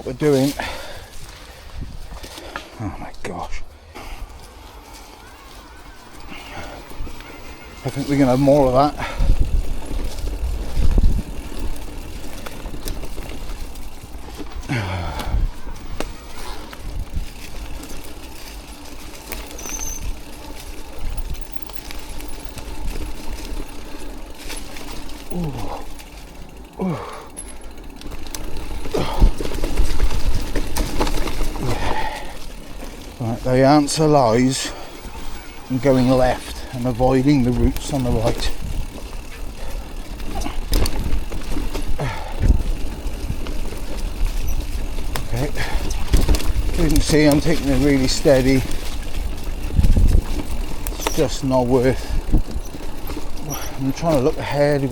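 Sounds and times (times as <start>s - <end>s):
bike rattles and knocks: 0.0s - 54.9s
tyres rumbling over trail: 0.0s - 54.9s
wind rumble on microphone: 1.6s - 2.2s, 9.0s - 13.5s, 14.8s - 18.0s, 38.5s - 39.0s, 40.5s - 47.0s, 48.2s - 51.0s, 51.9s - 53.2s.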